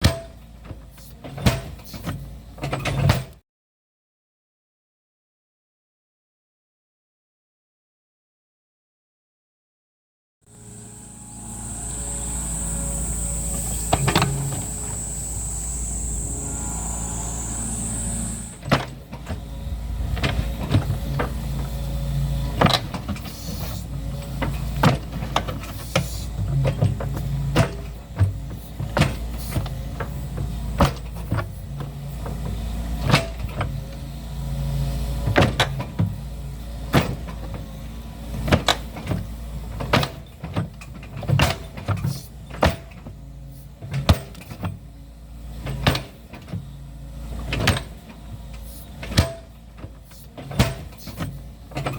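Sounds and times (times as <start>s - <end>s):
excavator engine running: 10.5s - 38.2s.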